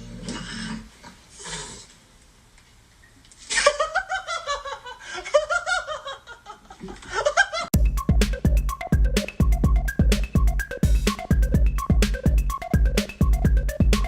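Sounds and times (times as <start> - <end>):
person giggling: 3.5 - 7.7.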